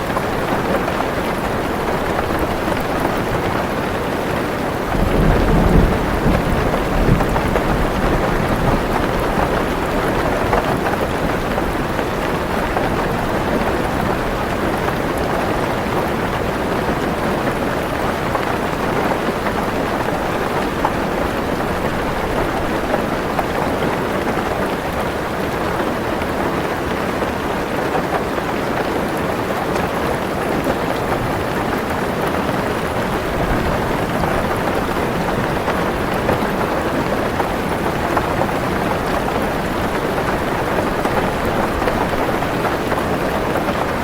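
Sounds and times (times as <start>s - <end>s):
heavy rain on car roof: 0.0s - 44.0s
low thunder rumble: 4.9s - 9.7s.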